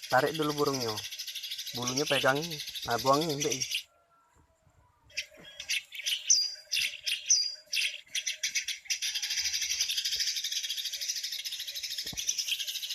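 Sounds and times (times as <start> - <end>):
fast continuous chirring: 0.0 - 3.8
small birds chirping: 0.0 - 12.9.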